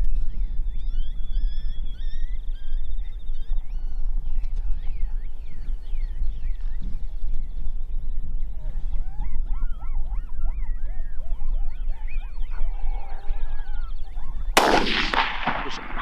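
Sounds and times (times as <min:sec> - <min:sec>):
coyote pup yips and whines: 0:08.6 - 0:14.6
gunshot echoing: 0:14.6 - 0:16.0.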